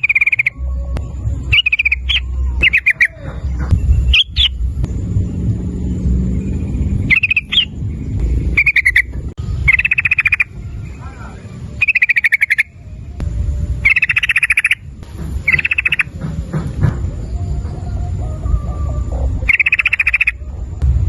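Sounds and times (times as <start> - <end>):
bulbul chattering calls: 0.0 - 0.6, 1.5 - 4.6, 7.1 - 7.8, 8.5 - 13.0, 13.8 - 16.2, 19.4 - 20.4
low background rumble: 0.0 - 21.0.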